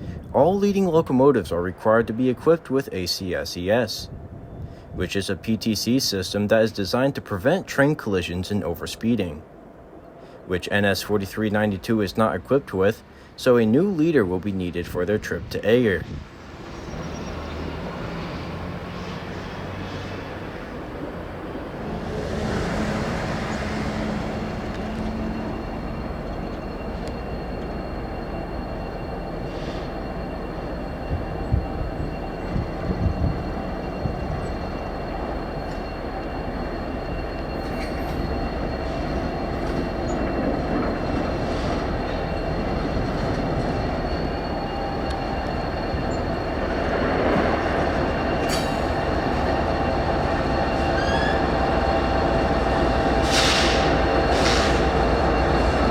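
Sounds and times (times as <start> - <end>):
freight train rumbling: 0.0 - 55.9
wheels squealing: 16.3 - 55.9.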